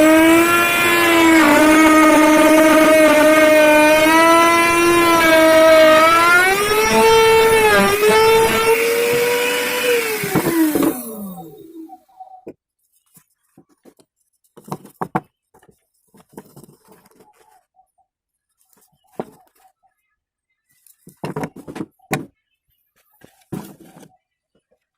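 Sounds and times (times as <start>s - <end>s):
hard objects knocking and rattling: 14.6s - 17.4s, 21.0s - 22.3s.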